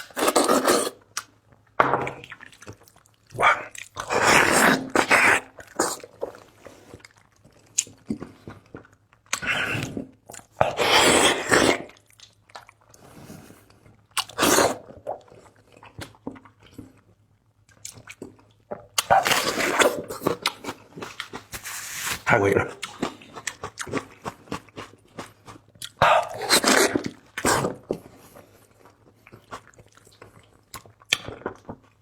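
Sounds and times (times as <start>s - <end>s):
biting and chewing: 17.7s - 32.0s.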